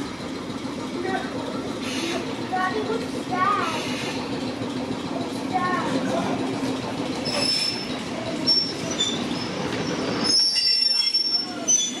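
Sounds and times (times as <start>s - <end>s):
railcar wheels rumbling on track: 0.0s - 12.0s
high-pitched flange squeal: 10.2s - 12.0s.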